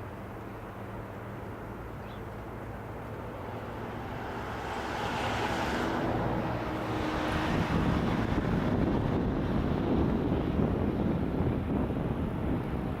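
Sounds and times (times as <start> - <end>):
jet engines rushing: 3.2 - 13.0.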